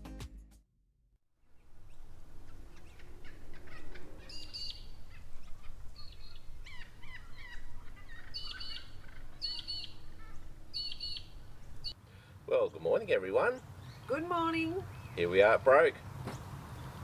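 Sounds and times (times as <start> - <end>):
low background rumble: 1.4 - 12.0
birds calling and chirping: 1.5 - 17.0.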